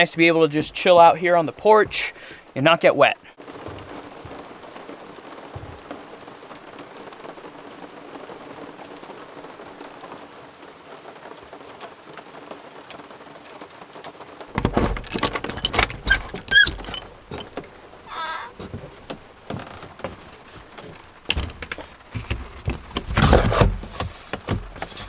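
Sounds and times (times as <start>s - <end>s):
rain pattering on roof: 0.0s - 23.2s
loud knocks and clattering: 14.5s - 17.8s, 18.5s - 25.0s
short squeak: 14.6s - 18.7s.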